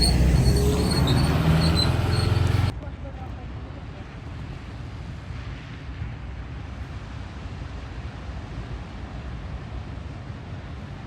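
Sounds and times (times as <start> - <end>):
vehicle engine rumbling: 0.0 - 2.7.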